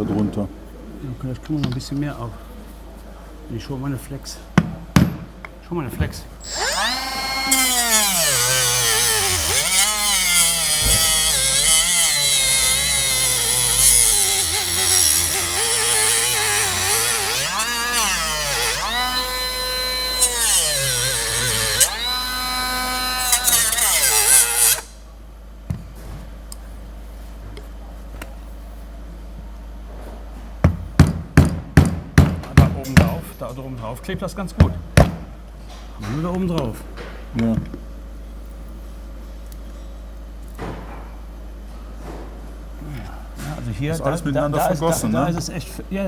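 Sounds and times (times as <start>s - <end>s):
angle grinder motor whine: 6.4s - 24.9s.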